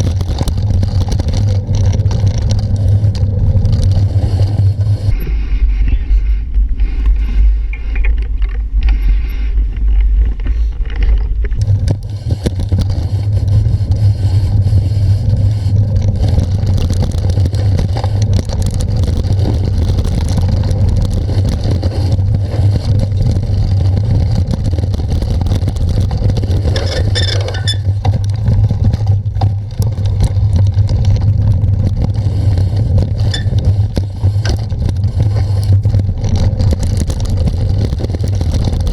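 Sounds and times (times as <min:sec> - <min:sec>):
bicycle rattling: 0:00.0 - 0:05.2, 0:09.8 - 0:38.9
wind rumble on microphone: 0:00.0 - 0:38.9.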